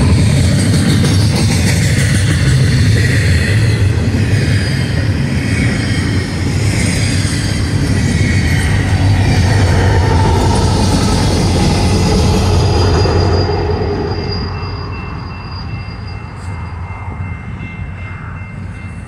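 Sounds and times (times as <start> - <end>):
distant train: 0.0 - 19.0
freight train rumbling on rails: 0.0 - 19.0
steady high-pitched tones: 0.0 - 19.0.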